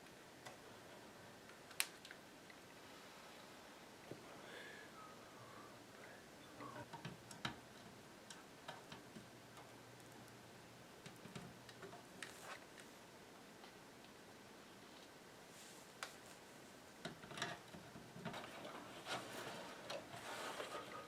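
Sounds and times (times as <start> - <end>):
small clicks and taps on wires: 1.4 - 2.6, 6.7 - 7.6, 8.2 - 10.4, 11.0 - 12.9.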